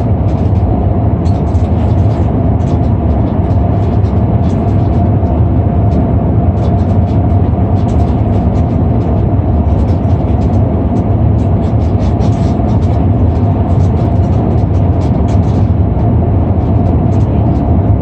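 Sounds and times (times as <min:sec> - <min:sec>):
airliner cabin rumble: 0:00.0 - 0:18.0
light rattles: 0:00.0 - 0:18.0.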